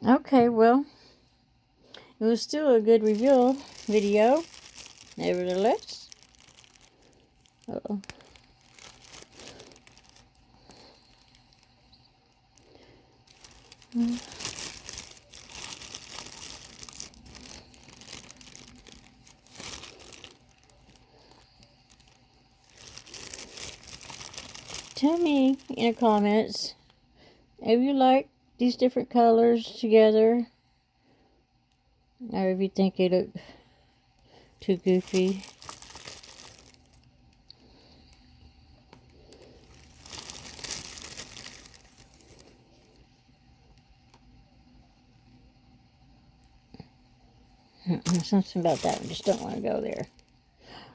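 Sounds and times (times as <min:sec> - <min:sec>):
craft materials crinkling: 0:02.8 - 0:26.4, 0:34.8 - 0:37.1, 0:39.1 - 0:42.9, 0:48.0 - 0:50.3.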